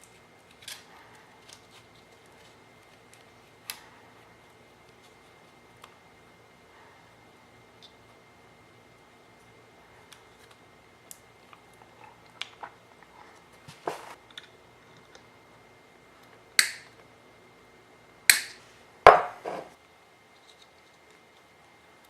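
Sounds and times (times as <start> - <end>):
small parts and tools clicking: 0.0 - 3.9.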